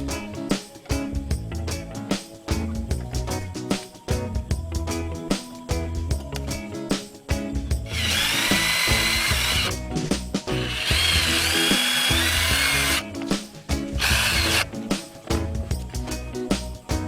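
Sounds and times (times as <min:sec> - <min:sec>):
background music: 0:00.0 - 0:17.0
small power tool whirring: 0:08.0 - 0:09.7, 0:10.7 - 0:13.0, 0:14.0 - 0:14.6.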